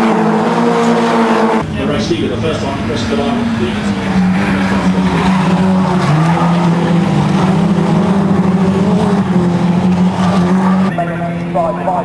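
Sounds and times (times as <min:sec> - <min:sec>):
lower car engine note: 0:00.0 - 0:12.0
racing car engines revving high: 0:00.0 - 0:12.0.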